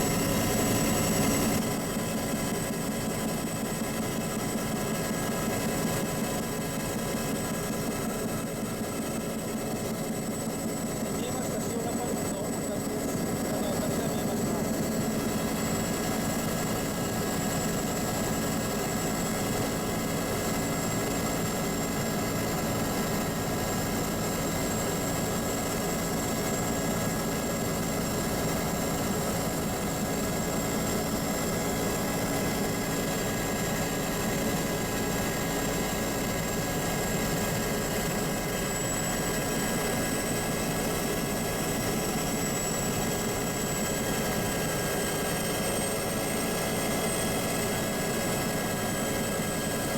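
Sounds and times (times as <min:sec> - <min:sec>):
high engine whine: 0:10.2 - 0:17.8
airliner cabin engine drone: 0:11.2 - 0:17.4.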